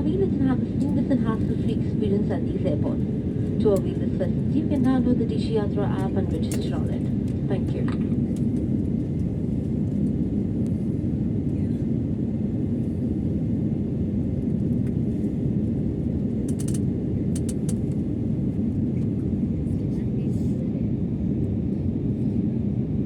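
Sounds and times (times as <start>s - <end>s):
jet engine rumble in cabin: 0.0s - 23.0s
light clicks: 17.4s - 18.0s.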